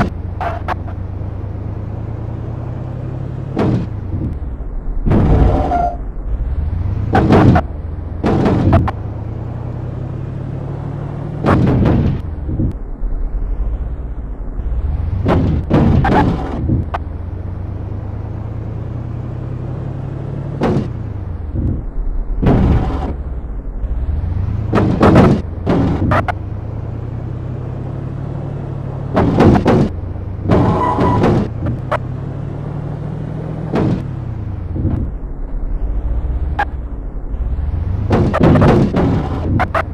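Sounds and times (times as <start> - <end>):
car engine droning: 0.0 - 39.9
exhaust bangs: 1.6 - 39.9
loud bursts and thuds: 5.0 - 5.7, 11.4 - 12.3, 15.1 - 16.9, 22.4 - 23.2, 24.6 - 26.3, 29.1 - 31.7, 38.0 - 39.7.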